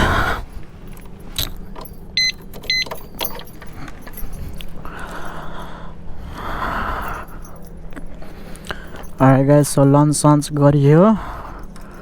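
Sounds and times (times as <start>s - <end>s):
steady low hum: 0.0s - 12.0s
light clicks and clatter: 0.8s - 5.4s
short electronic beeps: 2.2s - 2.9s.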